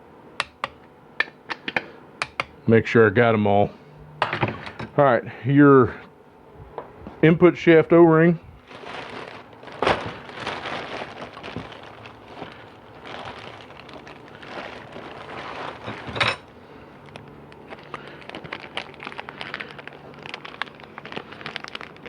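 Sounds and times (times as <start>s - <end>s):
small hard parts clinking: 8.9s - 18.4s.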